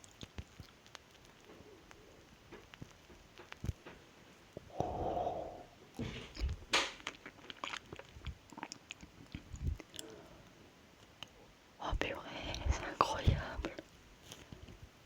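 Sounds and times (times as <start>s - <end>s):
chewing with wet clicks: 0.0s - 3.9s, 6.3s - 11.4s, 12.2s - 14.7s
sharp crunch: 6.0s - 7.8s.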